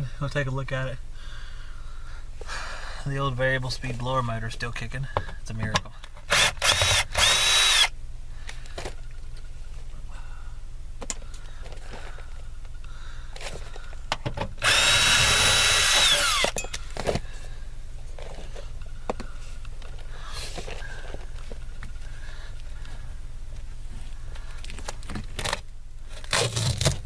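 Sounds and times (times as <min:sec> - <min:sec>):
steady low hum: 0:00.0 - 0:27.0
power drill motor whine: 0:06.3 - 0:08.0, 0:14.6 - 0:17.1.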